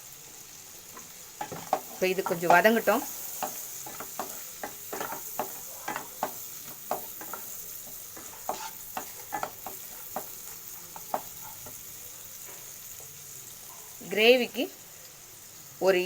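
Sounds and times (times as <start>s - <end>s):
food sizzling in a pan: 0.0s - 16.0s
spatula scraping a pan: 0.9s - 11.9s.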